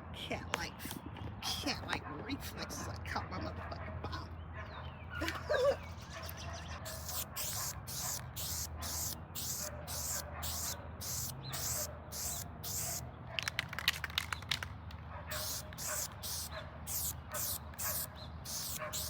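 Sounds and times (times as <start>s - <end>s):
spray paint can hissing: 5.9s - 14.6s, 15.3s - 19.0s
spray can clicks: 6.9s - 14.7s, 15.3s - 19.0s.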